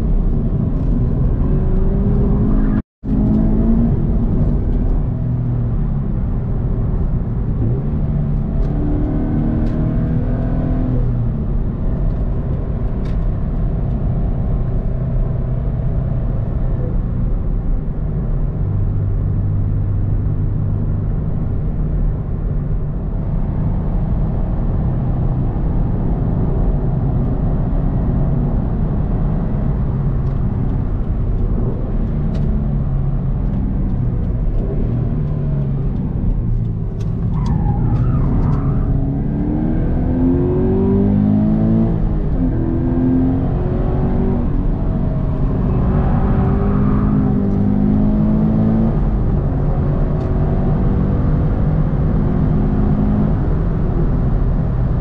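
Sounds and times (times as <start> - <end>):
car engine from inside cabin: 0.0 - 55.0
tyre and road noise: 0.0 - 55.0.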